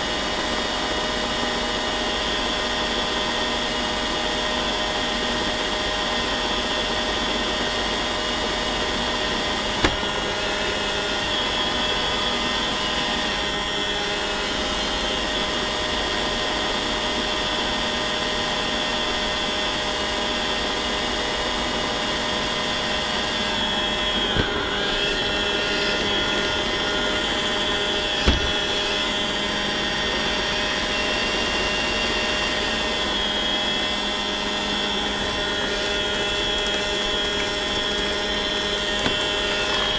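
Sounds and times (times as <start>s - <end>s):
robot vacuum whirring: 6.6s - 16.0s, 21.8s - 39.9s.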